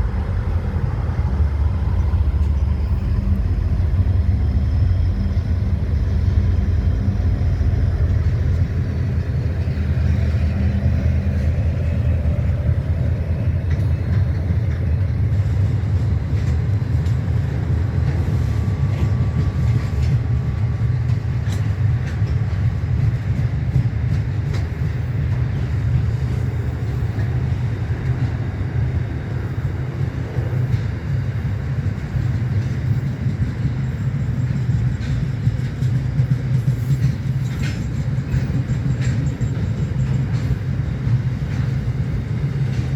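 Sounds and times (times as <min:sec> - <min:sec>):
rail clicks: 0:00.0 - 0:42.9
train rumbling past: 0:00.0 - 0:42.9.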